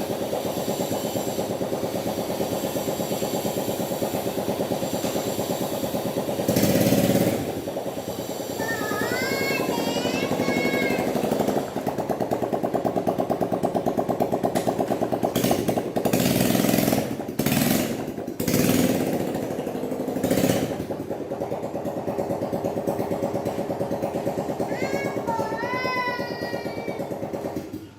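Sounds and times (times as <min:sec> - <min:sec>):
small engine revving: 0:00.0 - 0:27.9.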